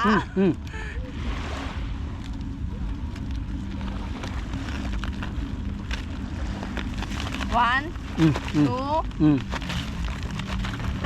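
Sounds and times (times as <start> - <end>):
faint steady hum: 0.0 - 11.0
low outdoor rumble: 0.0 - 11.0
crackling clicks: 2.2 - 11.0.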